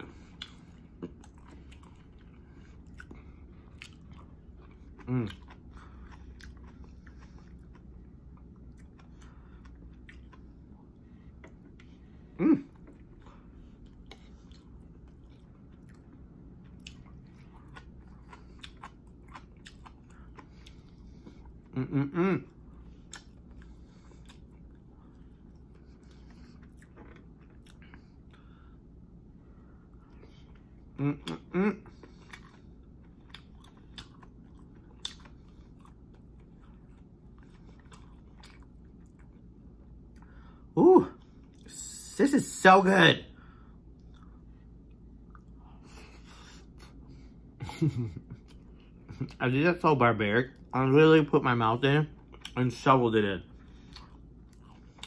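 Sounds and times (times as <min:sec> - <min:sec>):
person chewing food: 0:00.0 - 0:41.7, 0:43.4 - 0:49.4, 0:52.1 - 0:52.6, 0:53.5 - 0:55.0.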